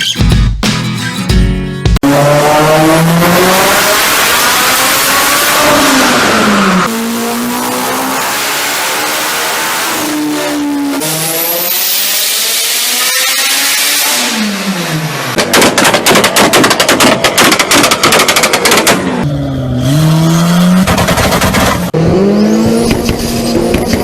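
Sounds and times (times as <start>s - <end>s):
engine revving: 2.0s - 15.4s, 18.8s - 24.0s
engine pops and bangs: 15.4s - 19.2s, 20.8s - 22.0s.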